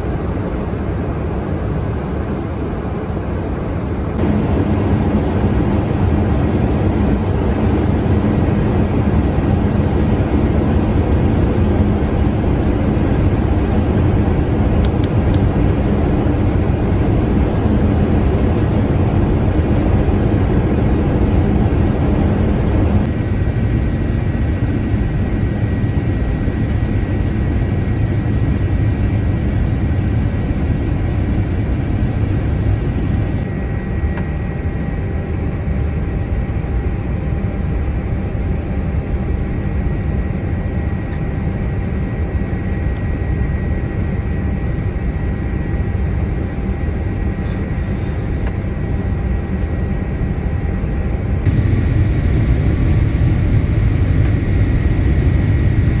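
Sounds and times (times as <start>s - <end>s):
jet engine cabin noise: 0.0s - 56.0s
faint steady tones: 32.4s - 56.0s.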